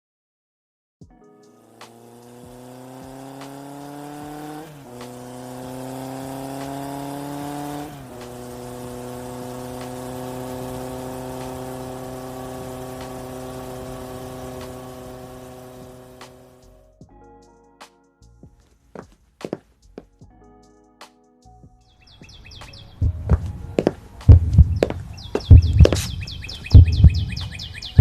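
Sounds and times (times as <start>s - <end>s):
car engine accelerating: 1.6s - 16.8s, 22.2s - 28.0s.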